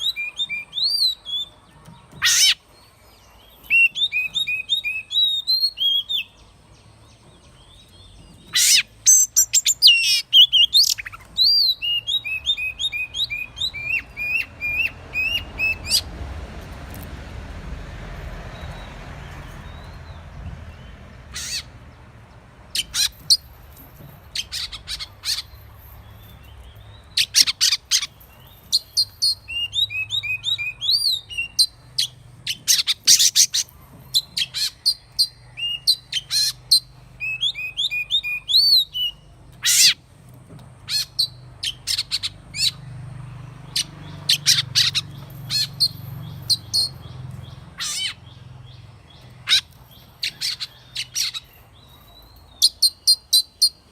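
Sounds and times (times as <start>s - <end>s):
bird whistling song: 0.0s - 2.6s, 3.4s - 6.4s, 7.7s - 16.0s, 27.1s - 40.0s.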